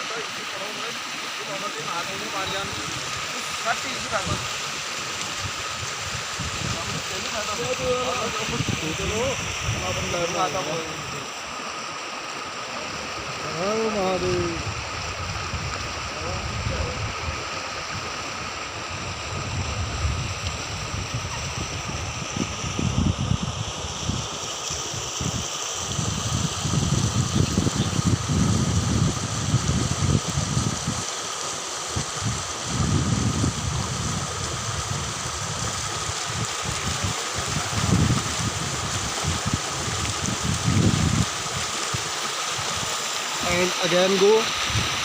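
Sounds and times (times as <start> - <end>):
flowing river water: 0.0 - 45.0
low rumbling on microphone: 14.2 - 18.1, 18.8 - 24.3, 32.2 - 41.4.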